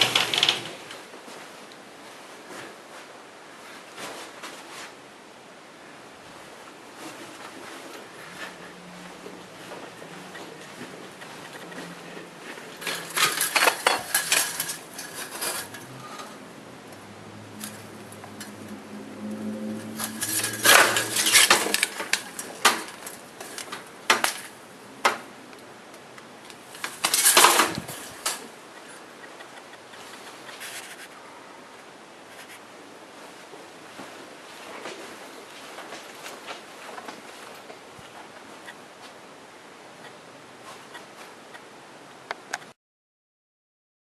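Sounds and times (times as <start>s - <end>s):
clattering knocks and clinks: 12.5s - 16.4s, 19.7s - 24.5s, 26.7s - 28.4s.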